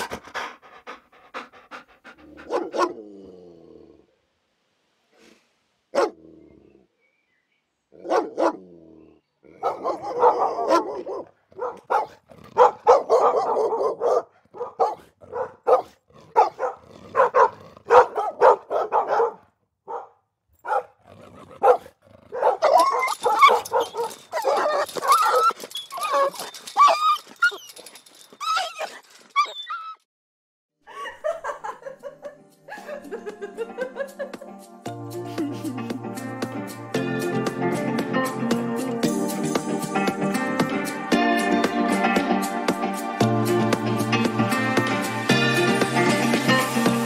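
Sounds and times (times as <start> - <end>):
dog barking and yipping: 2.2 - 3.0, 5.9 - 6.2, 8.0 - 8.6, 9.6 - 30.0.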